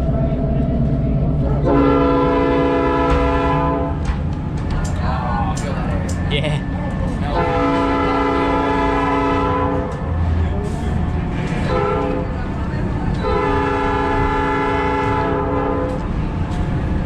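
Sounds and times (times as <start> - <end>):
moving train rumble: 0.0 - 17.0
locomotive horn blasts: 1.6 - 4.0, 7.3 - 10.1, 11.6 - 12.4, 13.2 - 16.0.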